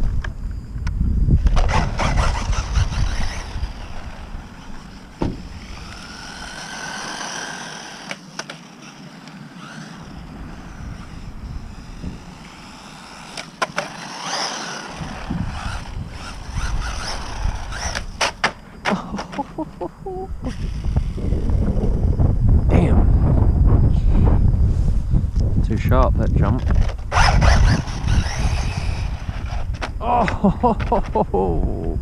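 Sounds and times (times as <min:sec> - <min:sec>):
electric toy truck motor whining: 0:01.2 - 0:22.1, 0:26.7 - 0:30.0
truck landing knock: 0:05.2 - 0:05.5.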